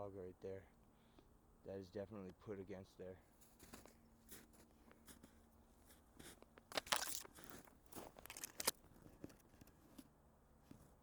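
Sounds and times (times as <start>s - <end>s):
footsteps crunching in snow: 3.4s - 8.8s.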